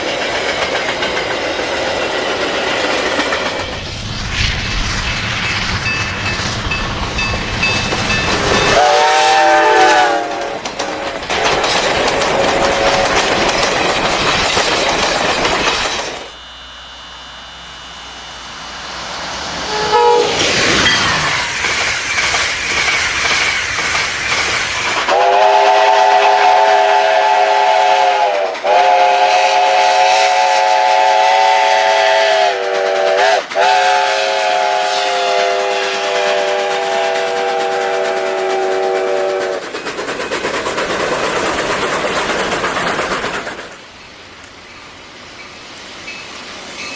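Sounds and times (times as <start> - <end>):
train running: 0.0 - 46.9
train horn blasts: 8.7 - 10.6, 19.6 - 20.4, 25.1 - 39.5.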